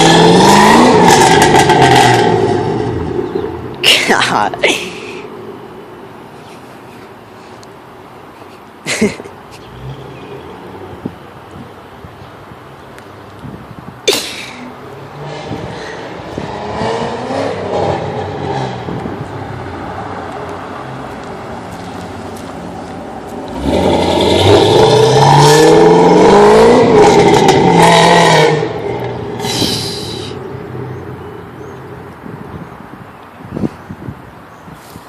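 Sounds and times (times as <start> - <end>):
car engine idling and revving: 0.0 - 3.8, 14.8 - 33.2.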